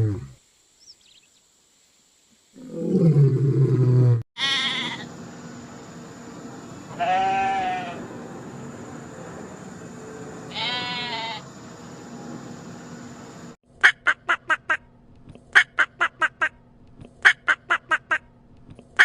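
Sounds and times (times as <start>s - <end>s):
goat bleating: 4.4s - 5.1s, 6.9s - 8.0s, 10.5s - 11.4s.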